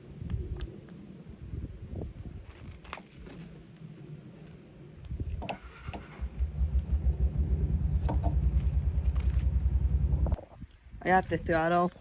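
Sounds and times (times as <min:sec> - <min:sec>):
small engine running: 0:05.7 - 0:10.3.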